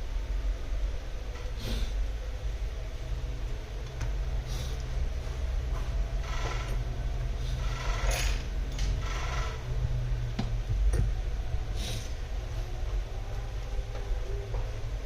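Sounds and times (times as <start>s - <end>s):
steady low hum: 0.0s - 15.0s
metal tools scraping and clicking: 7.9s - 9.0s.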